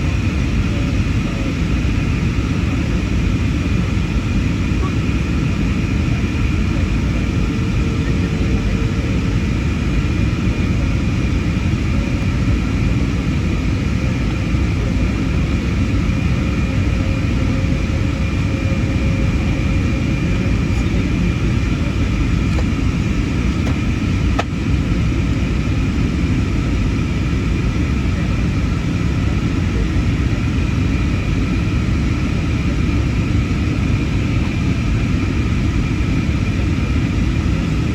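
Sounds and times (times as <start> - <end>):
airplane cabin rumble: 0.0 - 37.9
faint whining tones: 2.6 - 25.0.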